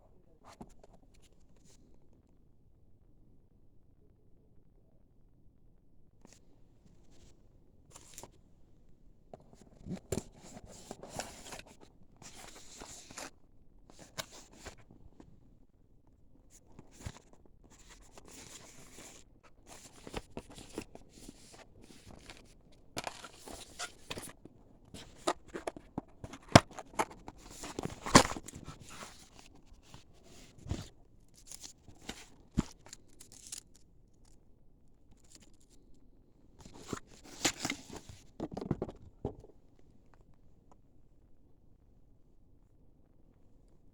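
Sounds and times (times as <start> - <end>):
plastic and cardboard crinkling: 16.7 - 33.8.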